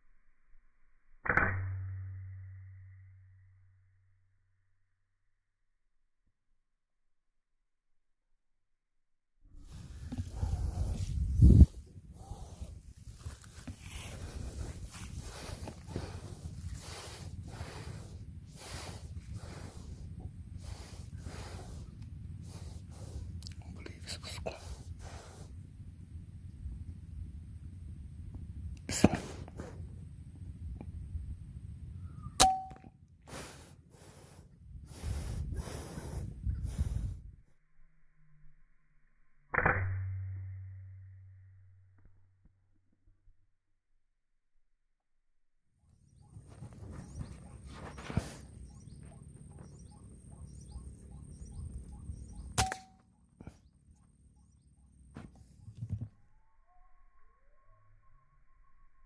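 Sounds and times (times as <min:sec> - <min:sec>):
low rumbling noise: 0:09.6 - 0:32.7
air rifle crack: 0:09.7 - 0:23.4, 0:28.8 - 0:29.8, 0:32.4 - 0:36.1, 0:52.5 - 0:53.6
faint chirping call: 0:31.8 - 0:32.8, 0:45.9 - 0:59.0
short metallic ring: 0:32.4 - 0:32.9
air rifle shot: 0:52.5 - 0:53.0.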